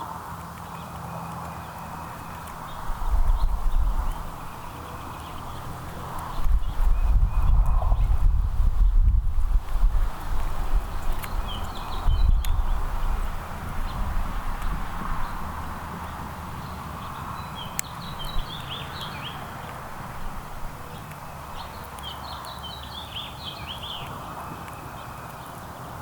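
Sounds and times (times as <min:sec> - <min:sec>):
outdoor background hiss: 0:00.0 - 0:26.0
small songbird singing: 0:00.4 - 0:26.0.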